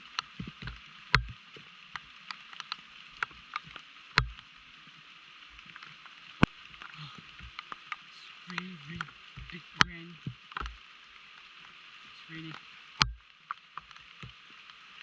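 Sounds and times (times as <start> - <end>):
heavy rain hissing: 0.0 - 15.0
sharp taps and knocks: 0.3 - 1.4, 2.6 - 4.4, 7.4 - 10.8, 12.5 - 14.4.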